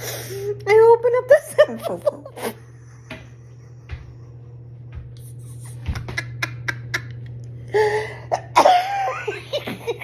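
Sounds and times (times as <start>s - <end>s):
woman laughing helplessly: 1.6s - 4.2s, 5.6s - 10.0s
woman coughing: 8.4s - 9.8s.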